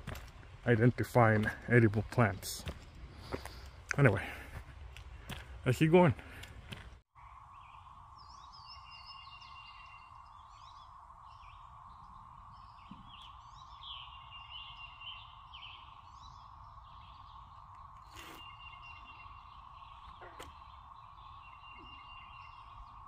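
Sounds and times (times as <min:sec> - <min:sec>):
birds chirping and singing: 0:07.2 - 0:23.0.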